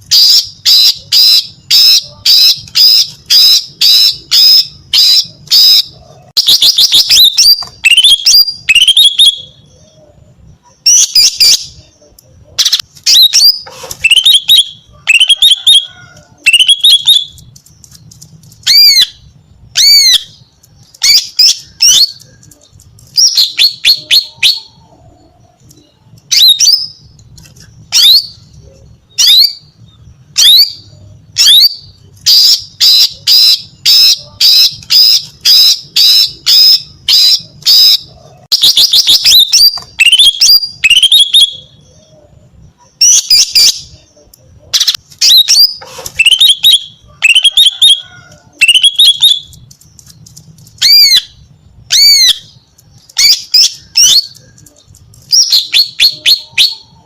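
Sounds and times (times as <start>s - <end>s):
bird whistled chirps: 0.1s - 11.9s, 12.6s - 17.4s, 44.8s - 49.5s, 55.3s - 57.0s.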